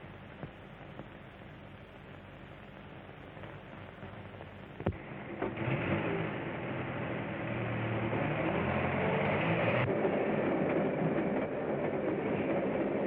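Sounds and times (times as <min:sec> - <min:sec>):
train running: 0:05.1 - 0:13.0.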